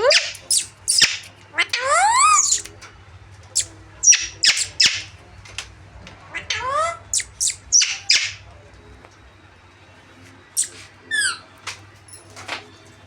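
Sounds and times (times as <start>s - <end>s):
parrots squawking: 0.0s - 2.7s, 3.6s - 5.1s, 6.3s - 8.4s.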